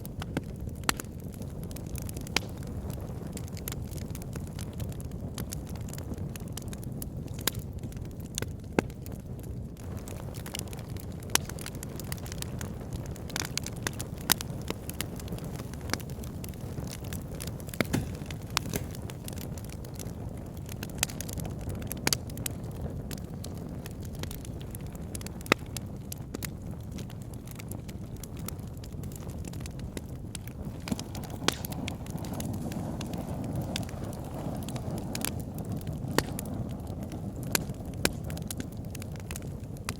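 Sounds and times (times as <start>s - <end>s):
burning logs crackling: 0.0s - 39.9s.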